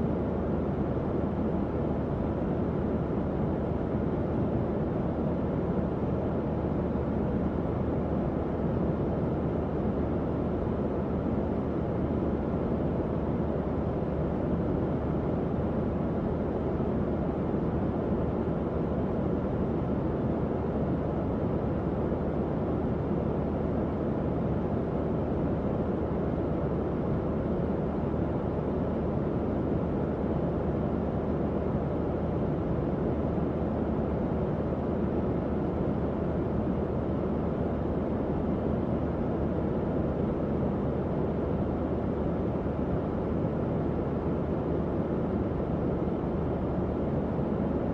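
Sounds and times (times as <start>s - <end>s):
tower fan airflow rushing: 0.0s - 47.9s.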